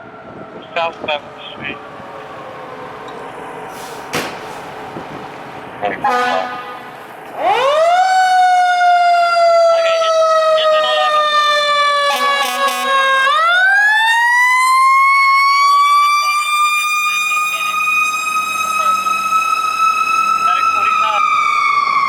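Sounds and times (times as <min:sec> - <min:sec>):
fire truck siren wailing: 0:00.0 - 0:22.0
air horn blast: 0:05.9 - 0:07.0, 0:12.0 - 0:13.1.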